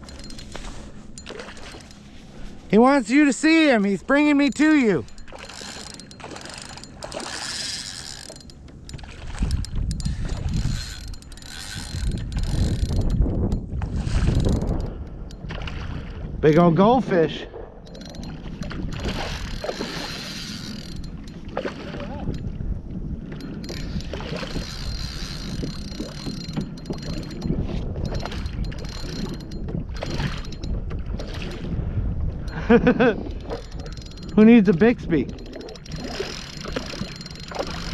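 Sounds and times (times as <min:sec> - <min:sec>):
fishing reel winding: 0:00.0 - 0:02.1, 0:02.7 - 0:15.4, 0:17.9 - 0:21.4, 0:22.2 - 0:22.6, 0:23.3 - 0:31.7, 0:32.5 - 0:37.9
wind rumble on microphone: 0:08.4 - 0:37.9.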